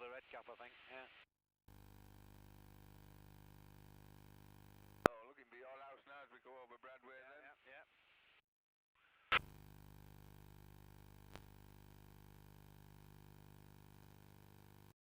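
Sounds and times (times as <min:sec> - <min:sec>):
small click: 0:11.3 - 0:11.5.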